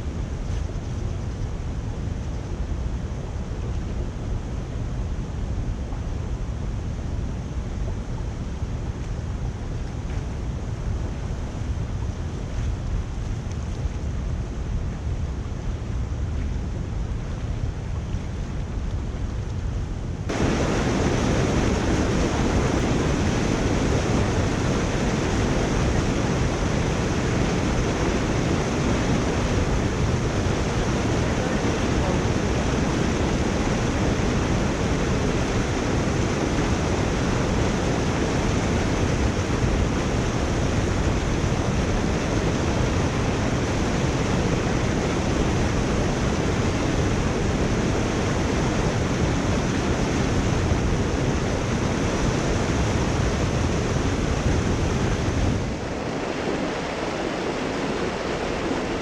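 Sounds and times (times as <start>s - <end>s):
water rushing through drain: 20.3s - 51.7s.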